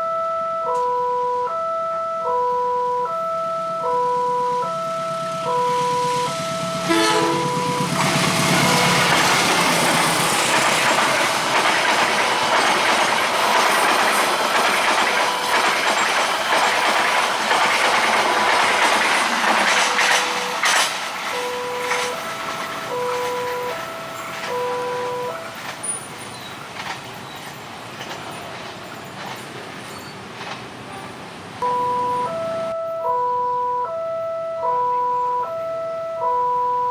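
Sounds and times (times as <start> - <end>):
level crossing warning chime: 0.0 - 25.6, 31.6 - 36.9
train wheels rumbling on rails: 4.5 - 31.6.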